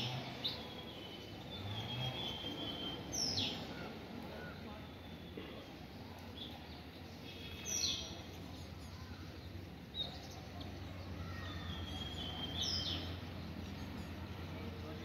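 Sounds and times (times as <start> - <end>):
small birds chirping: 0.0 - 15.0
held bird whistle: 11.7 - 12.8.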